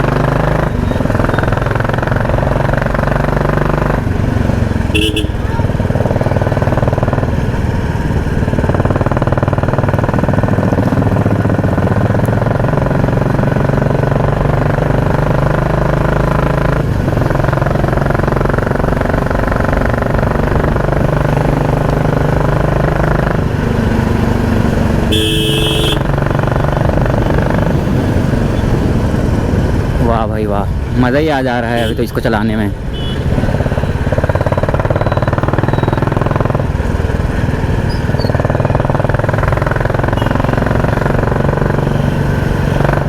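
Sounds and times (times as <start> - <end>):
motorcycle engine with loud exhaust: 0.0 - 43.0
vehicle horn: 4.8 - 5.7, 25.0 - 27.5, 31.7 - 32.2, 32.9 - 33.9, 40.1 - 40.8.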